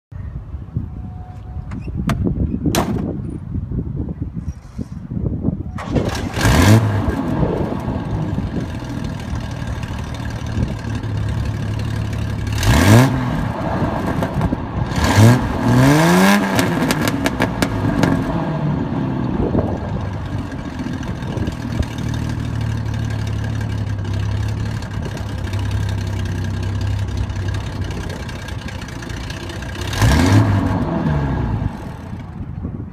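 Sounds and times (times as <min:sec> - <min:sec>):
car engine idling and revving: 0:05.8 - 0:32.9.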